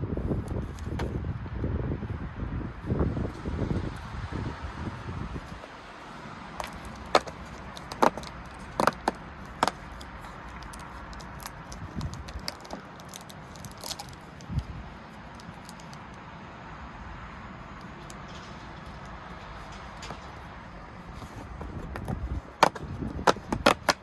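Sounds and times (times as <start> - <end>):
small plastic parts clicking: 6.6 - 14.7, 15.3 - 16.0.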